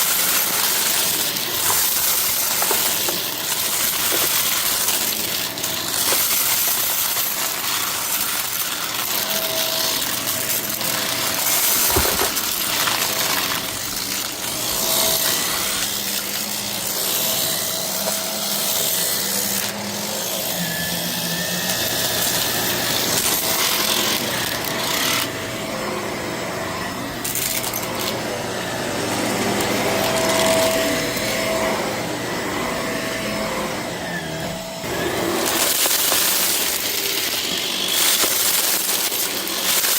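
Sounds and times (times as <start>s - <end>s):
debris rattling through vacuum: 0.0s - 9.2s, 10.1s - 16.3s, 34.9s - 39.9s
vacuum cleaner running: 0.0s - 39.9s.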